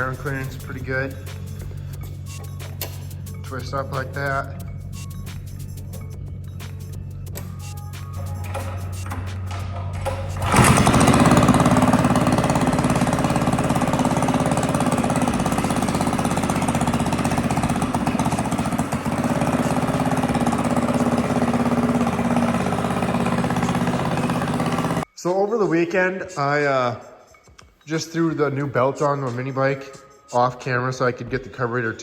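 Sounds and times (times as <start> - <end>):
mini bike engine running: 8.4 - 25.0.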